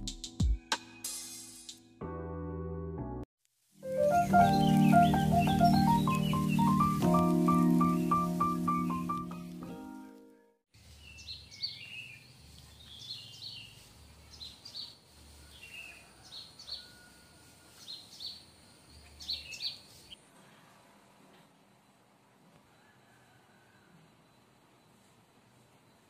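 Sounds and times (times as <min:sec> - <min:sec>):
small birds chirping: 0:04.0 - 0:09.4, 0:10.8 - 0:16.8, 0:17.8 - 0:20.2.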